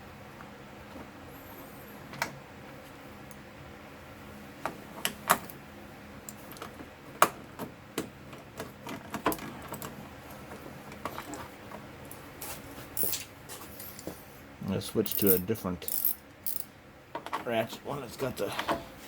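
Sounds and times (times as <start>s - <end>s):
ratchet wrench clicking: 13.0s - 13.2s, 15.0s - 16.7s.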